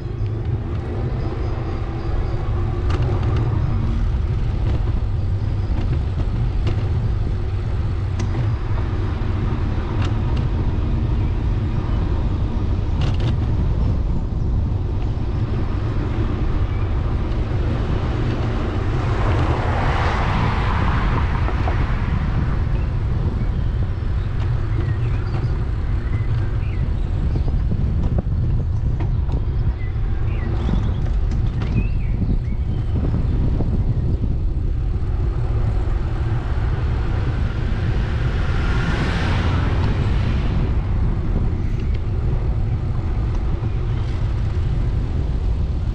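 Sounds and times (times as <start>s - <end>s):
road noise: 0.0s - 45.9s
wind rumble on microphone: 0.0s - 45.9s
motor vehicle passing: 15.1s - 45.9s.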